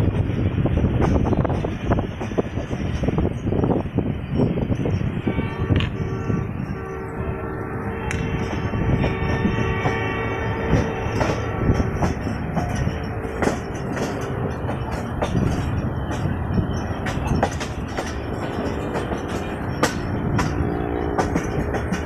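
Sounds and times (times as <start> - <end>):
train wheels rumbling on rails: 0.0 - 22.0
track clicks and knocks: 8.1 - 22.0.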